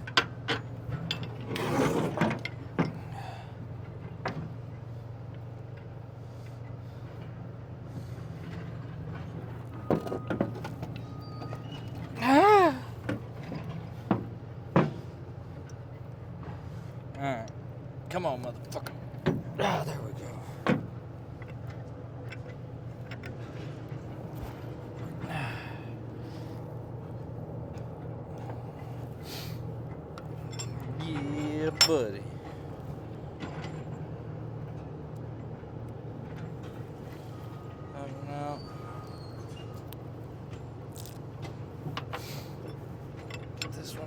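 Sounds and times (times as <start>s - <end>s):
light clicks of handling parts: 20.6s - 25.1s, 39.7s - 44.0s.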